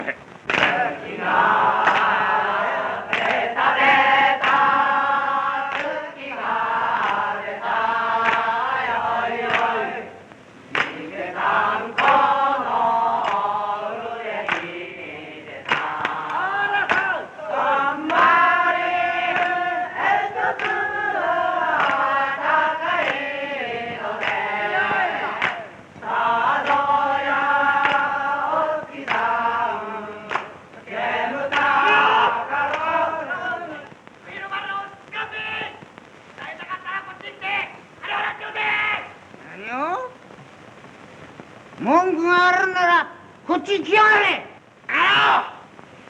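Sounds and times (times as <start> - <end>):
group of voices singing: 0.0 - 34.6.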